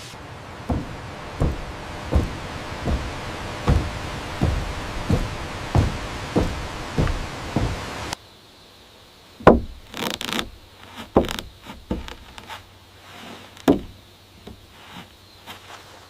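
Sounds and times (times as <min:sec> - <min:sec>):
loud wooden knocks: 0:00.5 - 0:08.2, 0:09.4 - 0:12.5, 0:13.6 - 0:14.7
light taps and scraping: 0:00.7 - 0:08.2, 0:09.6 - 0:16.0.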